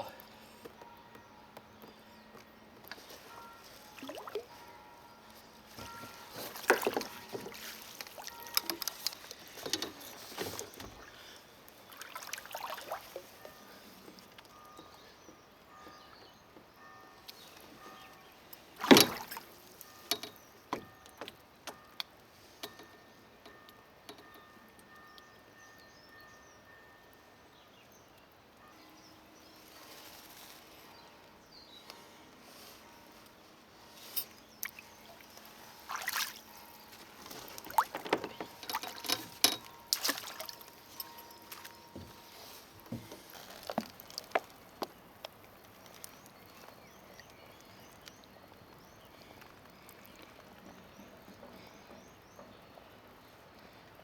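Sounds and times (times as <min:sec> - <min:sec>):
small water splashes: 0:04.0 - 0:04.6, 0:06.5 - 0:09.6, 0:11.8 - 0:13.4, 0:18.8 - 0:19.6, 0:34.6 - 0:41.9
knocks and clatter on kayak: 0:05.8 - 0:11.2, 0:18.8 - 0:19.5, 0:37.2 - 0:40.7.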